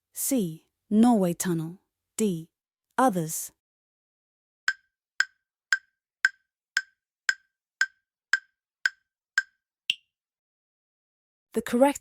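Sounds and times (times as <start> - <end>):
higher-pitched tick: 4.7 - 10.0
countdown timer ticking: 4.7 - 10.1.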